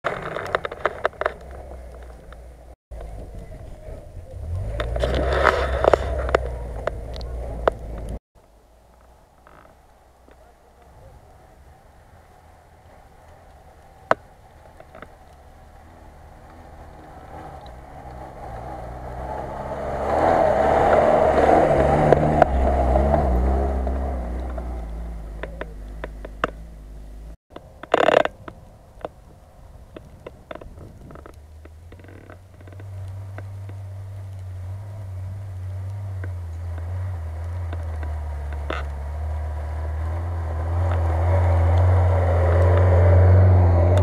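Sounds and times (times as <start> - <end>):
car engine passing: 0.1 - 8.2, 8.8 - 27.4, 31.4 - 44.0
scattered clicks: 4.6 - 8.2.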